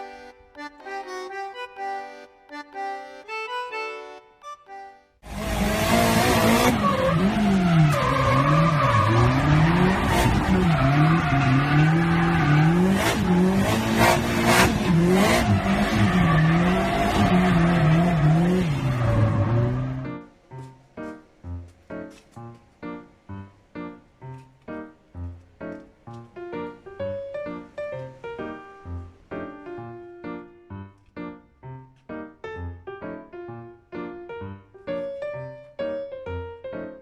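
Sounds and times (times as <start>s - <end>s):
instrumental music: 0.0s - 5.2s, 19.8s - 37.0s
car engine revving hard: 5.3s - 20.0s.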